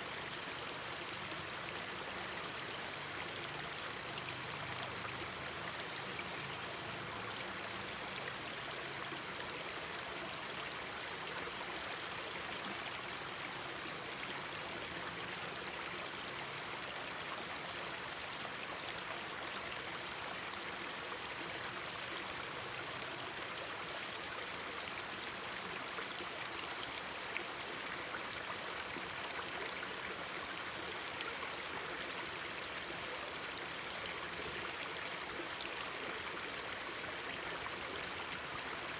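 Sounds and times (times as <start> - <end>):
mountain stream babbling: 0.0 - 38.9.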